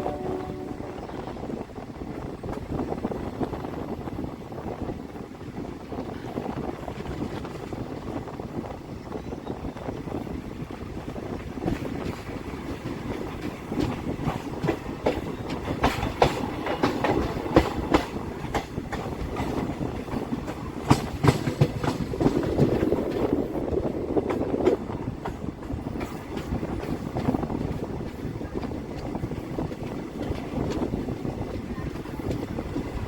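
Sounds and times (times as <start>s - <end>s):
train rumble: 0.0s - 33.0s
train wheels clacking over rail joints: 11.6s - 33.0s.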